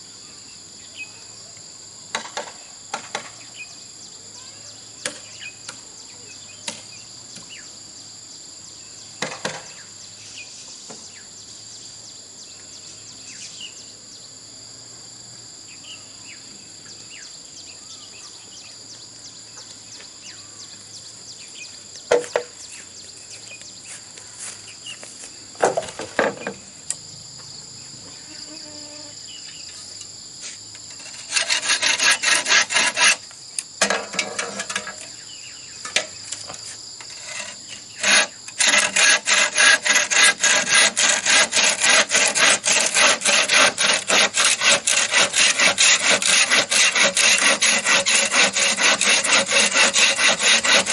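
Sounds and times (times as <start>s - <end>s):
insects chirring: 0.0s - 50.9s
hand tool rasping bamboo: 30.9s - 35.1s, 35.9s - 50.9s.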